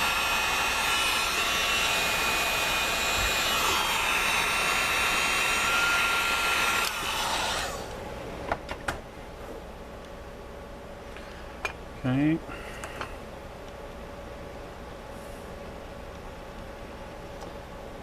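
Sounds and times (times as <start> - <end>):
heat gun fan whining: 0.0 - 9.0.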